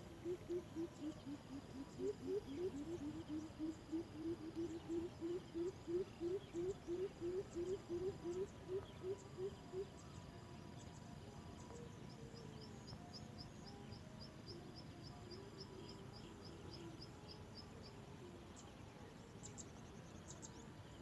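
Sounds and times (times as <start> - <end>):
bird calling deep hoots: 0.1 - 9.9.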